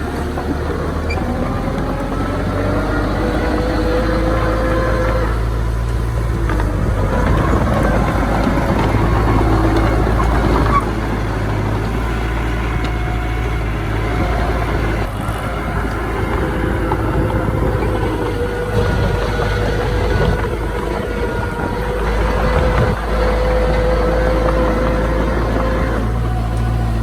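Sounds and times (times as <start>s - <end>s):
heavy diesel machinery droning: 0.0s - 27.0s.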